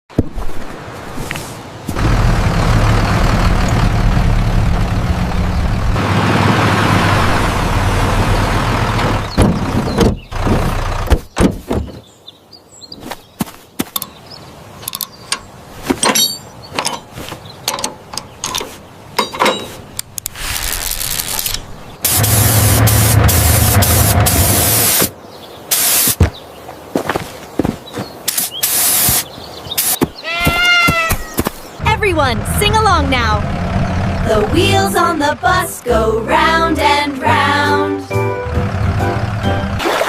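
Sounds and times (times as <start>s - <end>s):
vehicle engine running: 2.0s - 11.1s, 22.1s - 24.8s, 31.8s - 37.6s, 38.2s - 39.8s
sharp clanks and knocks: 9.3s - 12.0s, 14.8s - 20.2s.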